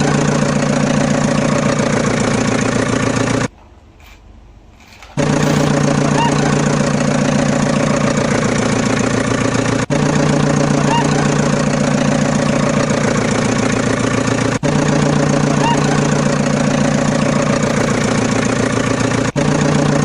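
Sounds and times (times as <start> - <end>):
tractor engine chugging: 0.0 - 3.5, 5.2 - 20.0.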